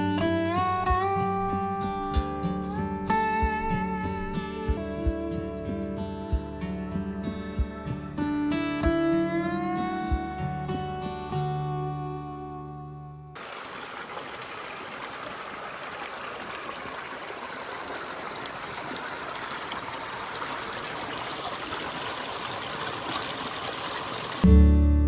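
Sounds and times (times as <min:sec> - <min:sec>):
acoustic guitar music: 0:00.0 - 0:13.4, 0:24.4 - 0:25.0
stream flowing over rocks: 0:13.4 - 0:24.5.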